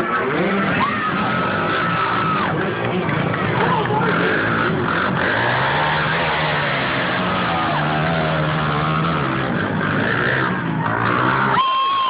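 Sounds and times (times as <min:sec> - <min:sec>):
mini dirt bike engines revving: 0:00.0 - 0:12.0.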